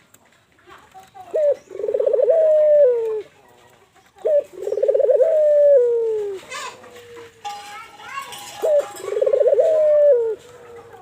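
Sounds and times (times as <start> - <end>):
dove cooing: 1.3 - 3.3, 4.2 - 7.3, 8.6 - 11.0.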